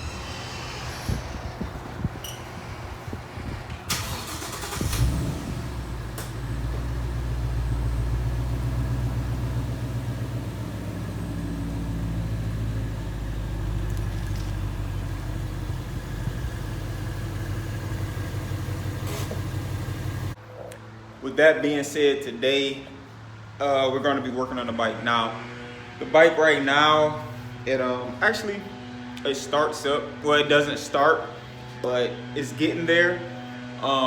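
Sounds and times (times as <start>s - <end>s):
engine cranking and running: 3.9s - 7.9s, 13.4s - 20.4s.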